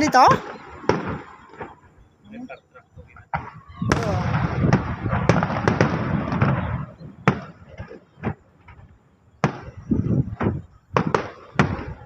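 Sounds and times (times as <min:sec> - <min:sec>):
fireworks bangs: 0:00.0 - 0:02.2, 0:02.9 - 0:12.0
rumbling echo: 0:03.1 - 0:07.7.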